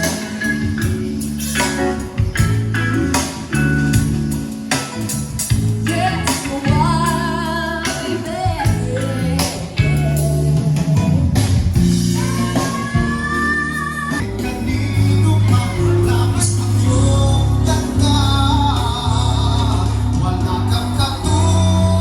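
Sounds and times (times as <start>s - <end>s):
person singing: 0.0s - 2.0s, 5.7s - 11.2s, 11.9s - 22.0s
band music with guitar and bass: 0.0s - 22.0s.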